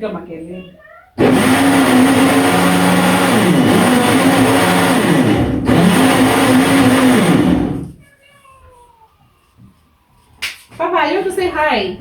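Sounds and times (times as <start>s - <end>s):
electric blender running: 1.2s - 7.9s.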